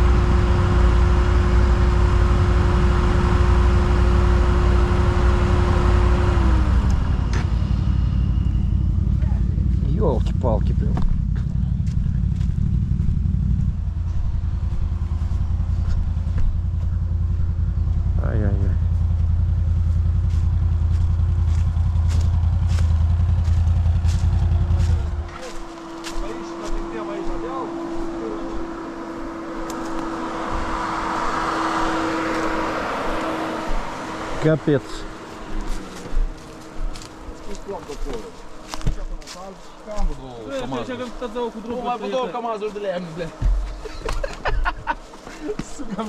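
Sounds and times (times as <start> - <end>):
atv engine idling: 0.0 - 25.6.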